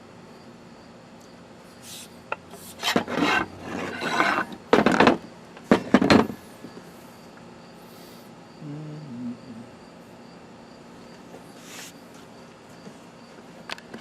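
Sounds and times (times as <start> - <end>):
tool rasping across wood: 2.6 - 4.6.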